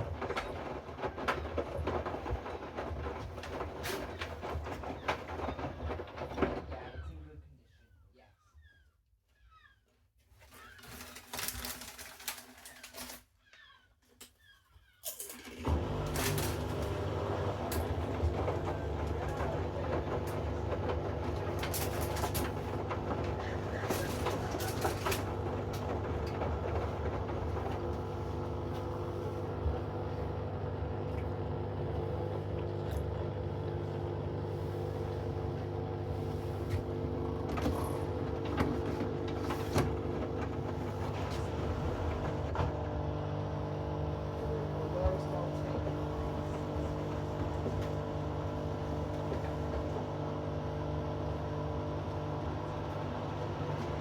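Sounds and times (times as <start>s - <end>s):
washing machine motor hum: 0.0s - 7.4s, 15.2s - 54.0s.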